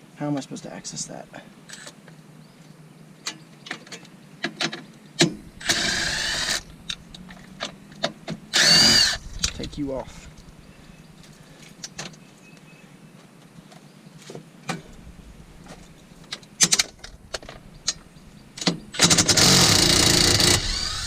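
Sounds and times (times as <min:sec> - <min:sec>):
cordless drill running: 0:05.6 - 0:06.7, 0:08.5 - 0:09.2, 0:19.0 - 0:21.0.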